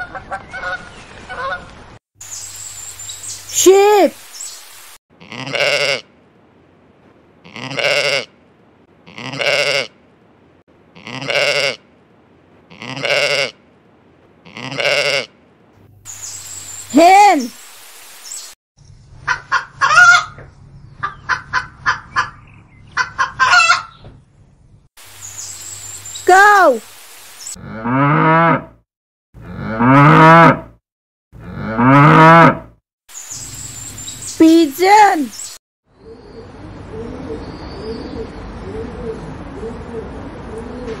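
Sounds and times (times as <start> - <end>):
sheep bleating: 5.2 - 6.0, 7.4 - 8.3, 9.0 - 9.9, 11.0 - 11.8, 12.7 - 13.5, 14.4 - 15.3
cow mooing: 9.1 - 9.9, 27.6 - 28.8, 29.4 - 30.8, 31.4 - 32.7.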